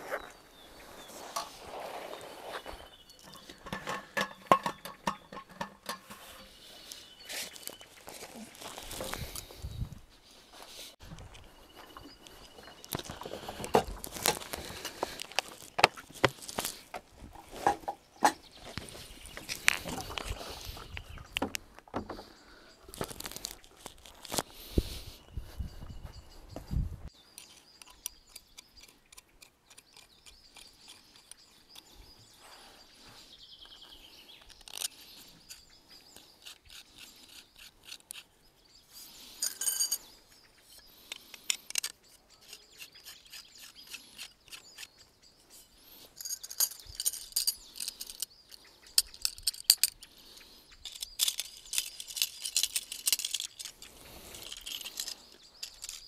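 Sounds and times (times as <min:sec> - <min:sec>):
birds chirping: 0:00.0 - 0:56.0
objects clicking and rustling: 0:03.1 - 0:06.6, 0:11.2 - 0:22.3, 0:22.9 - 0:24.5, 0:39.1 - 0:56.0.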